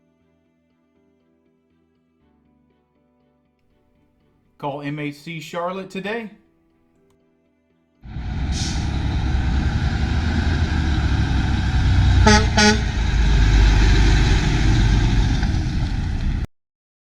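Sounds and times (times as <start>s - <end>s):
diesel truck engine rumbling: 8.1s - 16.5s
air hiss: 8.2s - 12.0s
truck horn toots: 11.0s - 14.6s.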